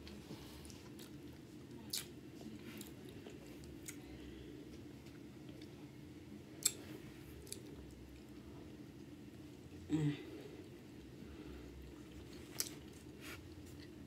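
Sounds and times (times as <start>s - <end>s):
low steady hum: 0.0s - 14.0s
person chewing: 0.1s - 2.2s, 2.8s - 4.0s, 6.6s - 8.4s, 11.8s - 14.0s.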